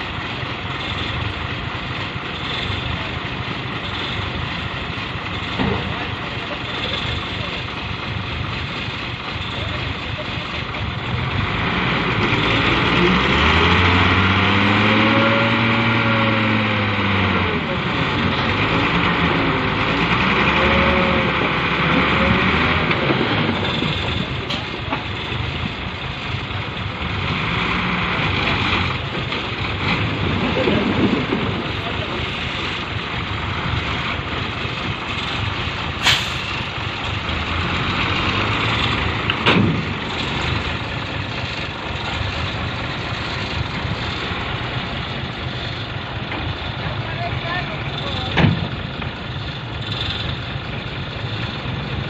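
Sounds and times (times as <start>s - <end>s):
diesel engine rumbling: 0.0s - 52.0s.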